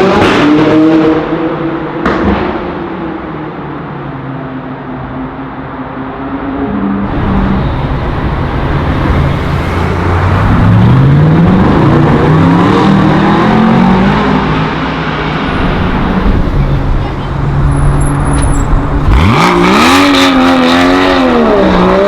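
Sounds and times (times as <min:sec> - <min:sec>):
car engine accelerating hard: 0:07.0 - 0:22.0.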